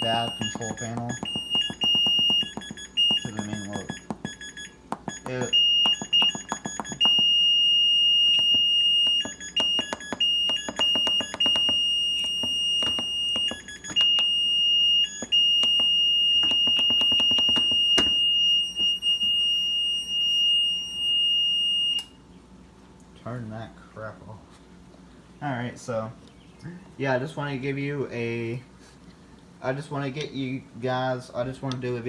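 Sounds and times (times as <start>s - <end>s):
high-pitched washer beep: 0.0s - 22.1s.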